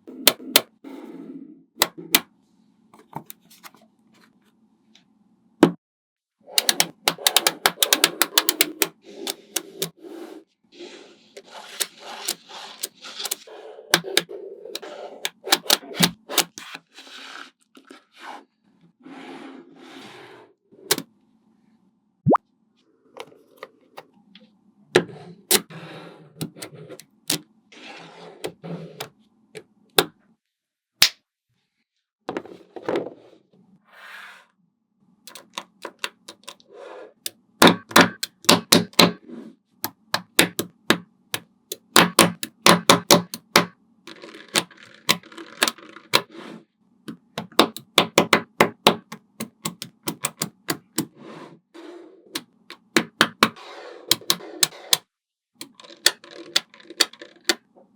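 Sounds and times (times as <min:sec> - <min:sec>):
magnetic balls clicking together: 0:06.6 - 0:09.9.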